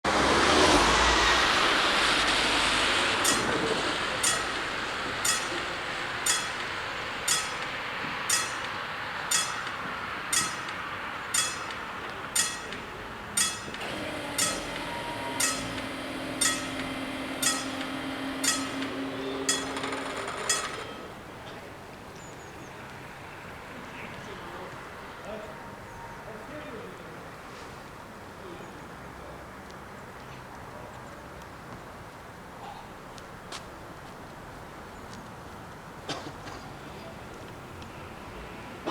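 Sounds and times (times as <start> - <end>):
passing electric train rushing: 0.0 - 22.0
level crossing bells: 3.2 - 21.2.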